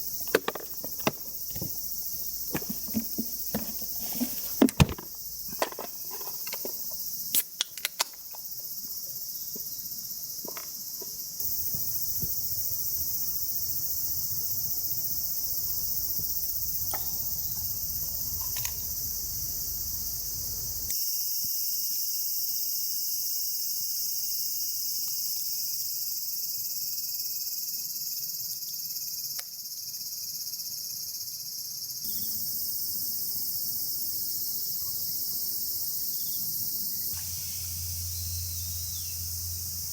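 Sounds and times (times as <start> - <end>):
insects chirring: 0.0 - 39.9.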